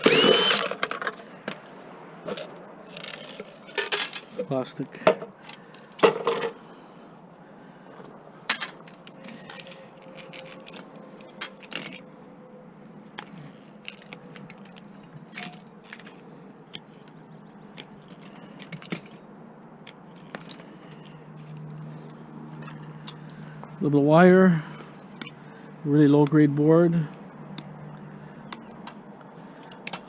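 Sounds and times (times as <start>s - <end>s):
plastic and metal parts clattering: 0.0s - 6.6s, 8.5s - 12.1s, 13.2s - 16.3s, 17.8s - 19.2s.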